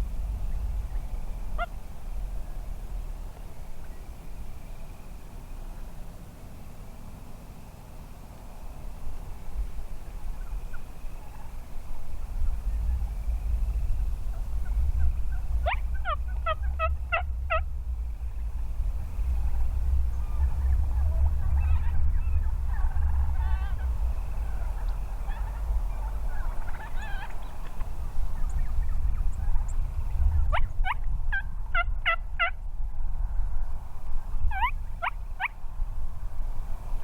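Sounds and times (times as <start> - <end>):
low rumble: 0.0 - 6.0, 9.0 - 37.0
turkeys gobbling: 1.6 - 1.8, 14.3 - 17.7, 20.3 - 29.3, 34.5 - 35.5
turkey yelps: 15.3 - 17.7, 20.4 - 27.9, 30.5 - 32.6, 34.5 - 35.5.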